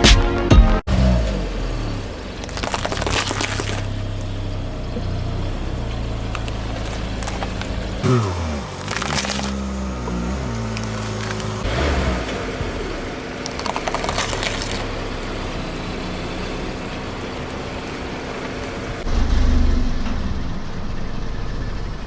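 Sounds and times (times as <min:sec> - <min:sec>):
tyre crunching over object: 0:00.9 - 0:11.8
car engine running: 0:00.9 - 0:19.2.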